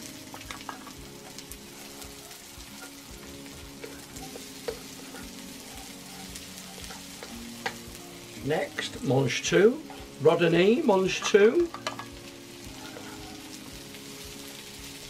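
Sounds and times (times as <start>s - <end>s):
vegetables sizzling in hot oil: 0.0s - 15.0s
wooden spatula scraping a pan: 0.3s - 7.8s, 12.7s - 13.8s.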